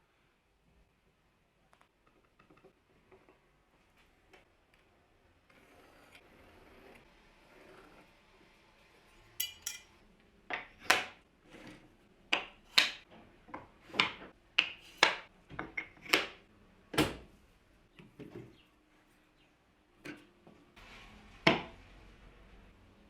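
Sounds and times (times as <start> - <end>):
tools knocking and clattering: 9.4 - 9.9.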